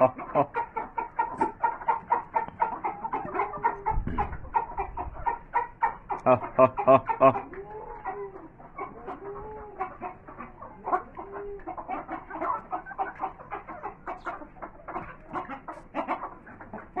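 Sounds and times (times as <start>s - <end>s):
chickens clucking: 0.0s - 17.0s
drawn-out chicken call: 0.0s - 17.0s.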